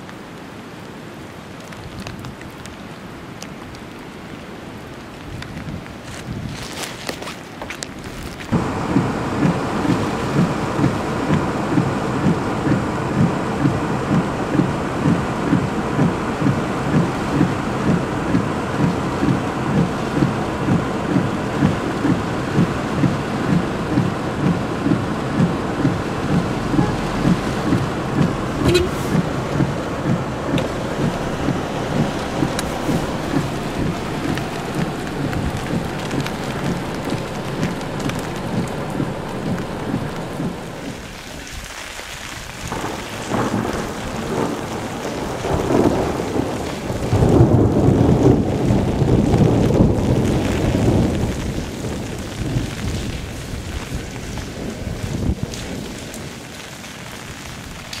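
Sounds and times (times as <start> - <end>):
heavy rain pouring: 0.0 - 58.0
regular low beat: 8.6 - 40.8.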